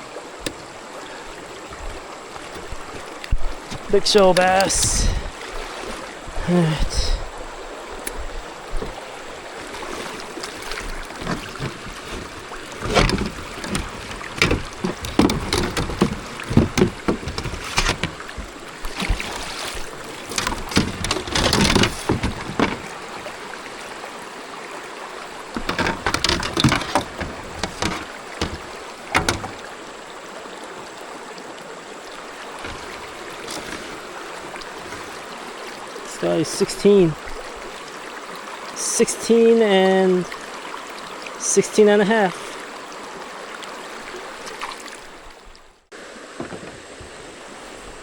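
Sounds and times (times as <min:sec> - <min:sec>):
knocks and rustles on a kayak: 0:00.0 - 0:24.0, 0:25.0 - 0:30.1, 0:32.0 - 0:36.1, 0:44.4 - 0:48.0
creek water rushing: 0:00.0 - 0:48.0.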